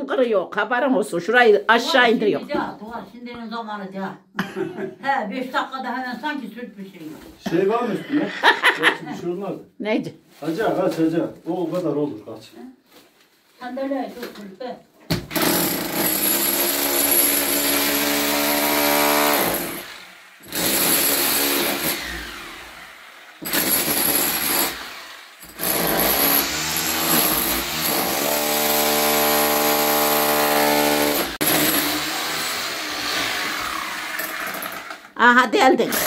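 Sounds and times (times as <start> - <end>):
electric drill boring into wall: 15.1 - 35.2.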